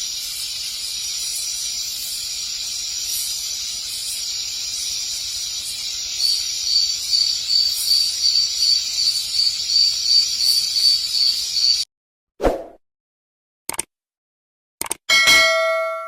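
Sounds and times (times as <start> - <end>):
high insect chirps: 0.0 - 11.8
insects hissing: 0.0 - 11.8.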